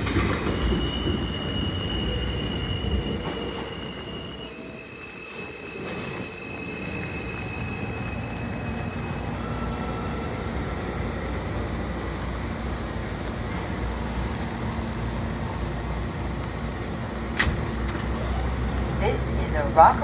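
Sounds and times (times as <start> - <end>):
train wheel squeal: 0.0 - 11.3, 17.8 - 19.2
train rumble and hum: 0.0 - 20.0.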